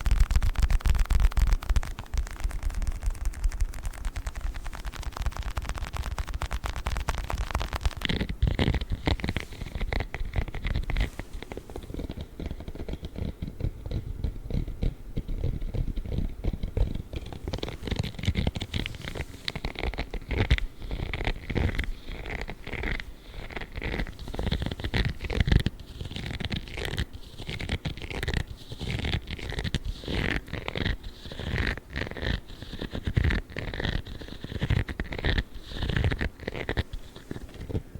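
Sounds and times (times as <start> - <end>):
scratching and crackling of ball: 0.0 - 37.9
spiky glove rubbed and scratched: 0.0 - 37.9.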